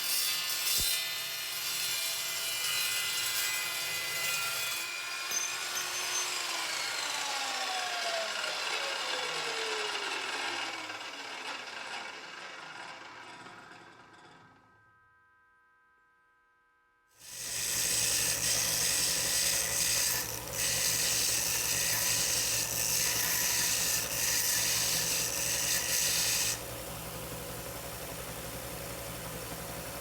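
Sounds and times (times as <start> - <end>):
motor-driven tool working metal: 5.1 - 14.4, 17.2 - 30.0.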